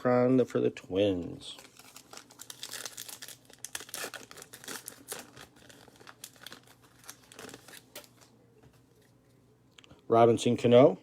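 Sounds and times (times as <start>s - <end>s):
cards and wrapper crinkling: 1.4s - 8.3s.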